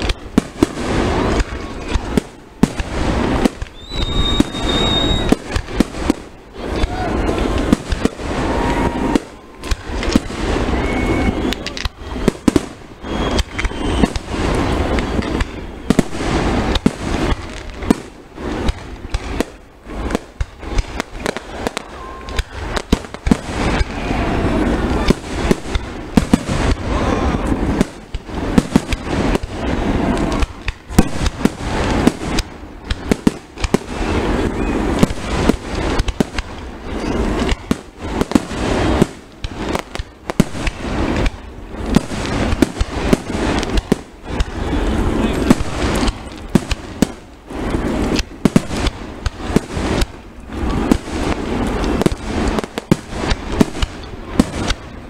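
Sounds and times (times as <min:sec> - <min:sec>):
fireworks crackling: 0:00.0 - 0:55.0
firework shells bursting: 0:45.3 - 0:55.0.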